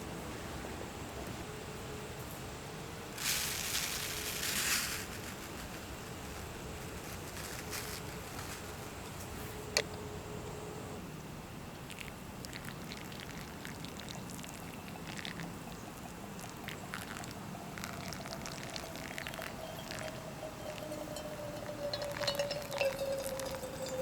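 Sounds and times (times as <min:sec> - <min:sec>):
liquid pouring and trickling: 0:11.9 - 0:15.5, 0:16.3 - 0:24.0
faint sliding tone: 0:18.8 - 0:24.0.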